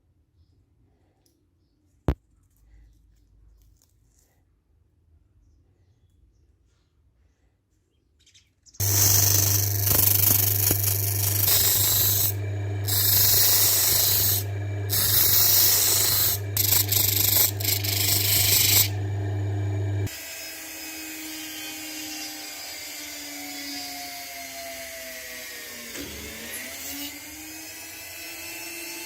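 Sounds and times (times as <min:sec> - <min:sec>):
quiet whir shifting pitch: 0:08.8 - 0:20.1
sander grinding metal: 0:08.8 - 0:24.0
sander motor hum: 0:08.8 - 0:28.8.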